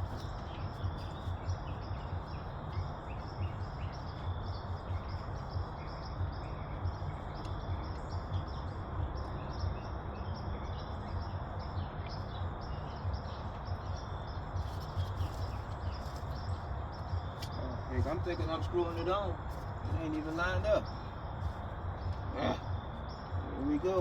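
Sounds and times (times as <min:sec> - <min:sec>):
small animals chirping: 0:12.2 - 0:24.0.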